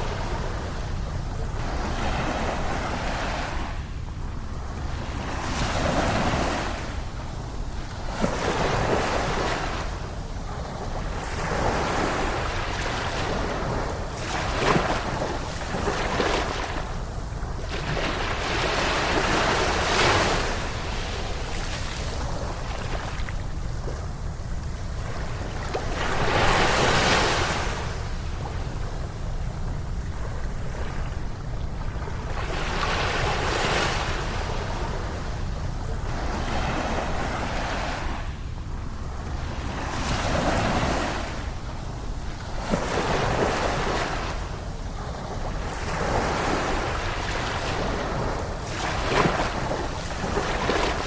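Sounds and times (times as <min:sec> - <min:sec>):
steady low rumble: 0:00.0 - 0:40.2
waves breaking on shore: 0:00.0 - 0:51.0.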